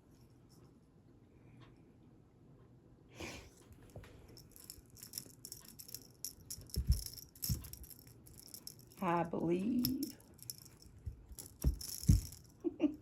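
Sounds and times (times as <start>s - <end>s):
cat toy rattling and jingling: 4.2s - 13.0s
dull thumps: 10.9s - 12.4s.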